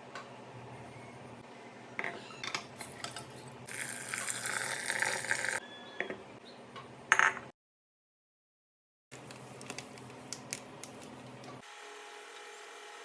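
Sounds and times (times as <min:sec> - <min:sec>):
water pouring into bowl: 0:03.7 - 0:05.6.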